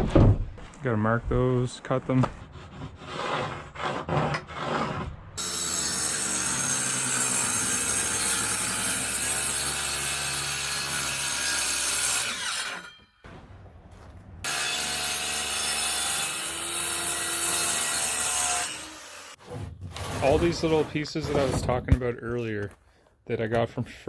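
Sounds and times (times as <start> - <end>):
power saw cutting wood: 3.1 - 13.1, 14.4 - 21.6
wood being handled: 19.4 - 23.1.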